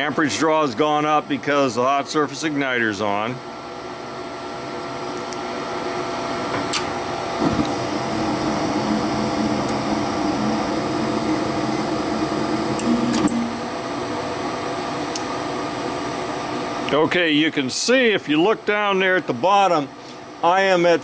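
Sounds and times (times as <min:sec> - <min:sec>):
furnace motor humming: 0:04.2 - 0:17.0
lower hum: 0:07.0 - 0:15.2.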